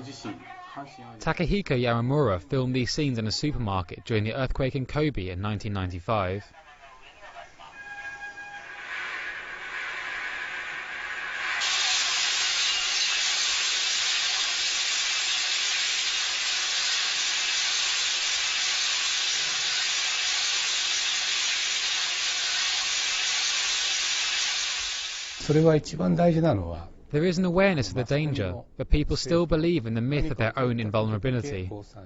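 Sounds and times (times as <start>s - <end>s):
steady hiss: 8.7s - 25.8s.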